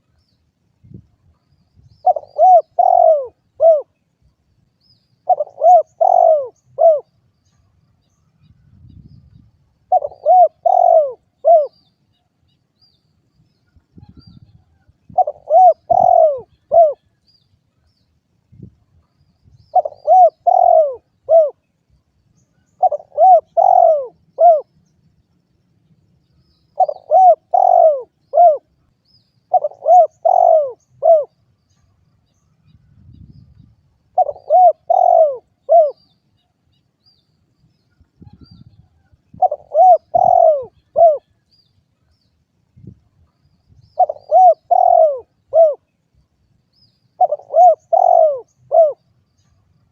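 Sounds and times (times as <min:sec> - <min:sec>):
dove cooing: 0:02.0 - 0:04.0, 0:05.2 - 0:07.2, 0:09.9 - 0:11.9, 0:15.1 - 0:17.1, 0:19.7 - 0:21.6, 0:22.8 - 0:24.7, 0:26.7 - 0:28.8, 0:29.5 - 0:31.4, 0:34.1 - 0:36.2, 0:38.2 - 0:41.4, 0:43.9 - 0:45.9, 0:47.2 - 0:49.0.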